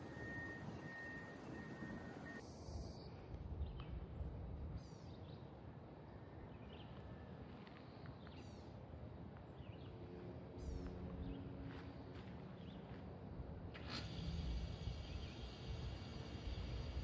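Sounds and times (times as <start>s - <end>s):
faint steady hum: 0.0s - 5.0s, 14.2s - 17.0s.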